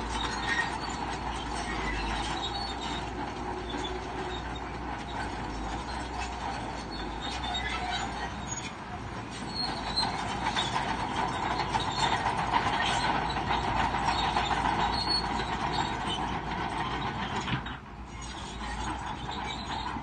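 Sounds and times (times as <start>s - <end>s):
diesel engine running: 0.0s - 20.0s
steel tracks clanking and squealing: 0.0s - 20.0s.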